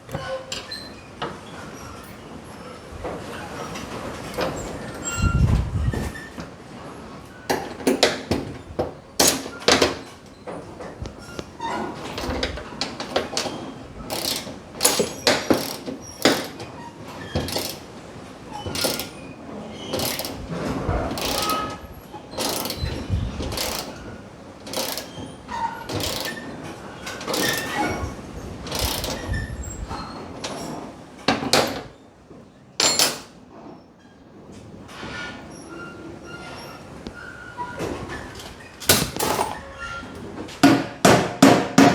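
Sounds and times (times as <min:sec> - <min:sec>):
metal tools clanking: 0:32.8 - 0:33.4, 0:38.8 - 0:40.0.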